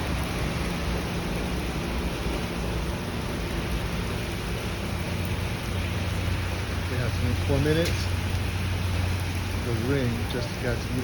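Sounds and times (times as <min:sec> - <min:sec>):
heavy rain pouring: 0:00.0 - 0:11.0
low steady rumble: 0:00.0 - 0:11.0.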